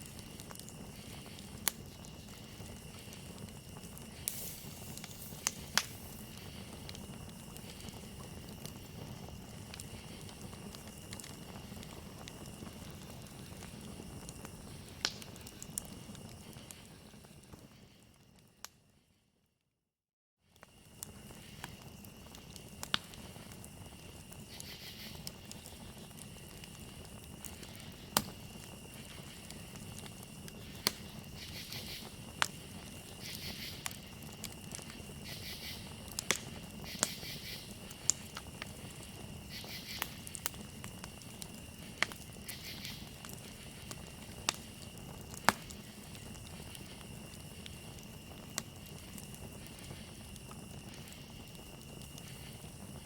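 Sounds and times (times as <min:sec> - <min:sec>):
cricket trill: 0:00.0 - 0:18.6, 0:20.5 - 0:53.0
campfire crackling and popping: 0:00.0 - 0:18.8, 0:20.5 - 0:53.0
pulsing insect chirps: 0:02.1 - 0:11.7, 0:24.0 - 0:36.1, 0:36.8 - 0:45.1.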